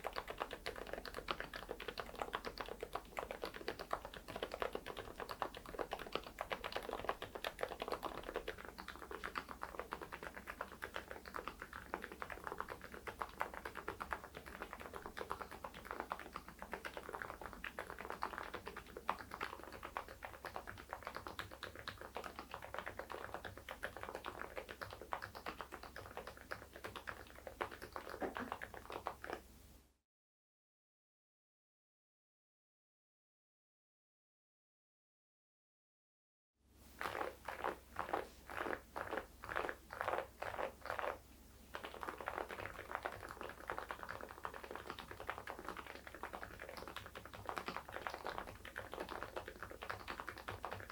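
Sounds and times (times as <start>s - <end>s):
typing on mechanical keyboard: 41.8s - 50.9s.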